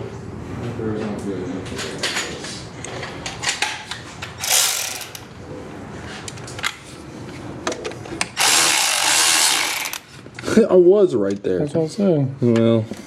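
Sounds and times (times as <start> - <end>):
ratchet wrench clicking: 4.4 - 5.3, 8.4 - 10.0.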